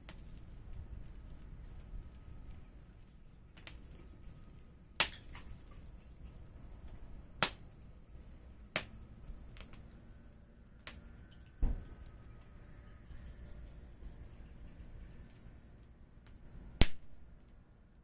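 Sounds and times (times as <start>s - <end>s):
small wood fire crackling: 0.0s - 18.0s.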